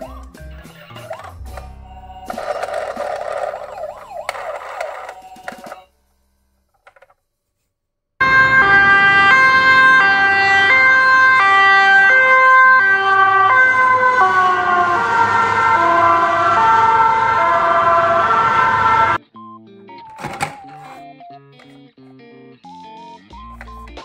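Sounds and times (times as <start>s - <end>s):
ambulance siren two-tone: 1.1s - 5.8s, 8.2s - 21.4s, 22.7s - 24.0s
road noise: 8.2s - 19.2s.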